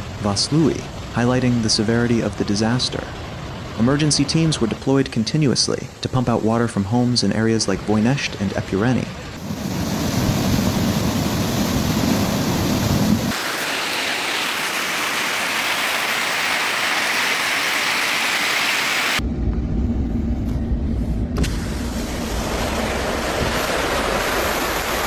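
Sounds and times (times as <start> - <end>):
steady high hiss: 0.0 - 19.2
heavy rain and floodwater rushing: 7.7 - 19.2, 22.0 - 25.0.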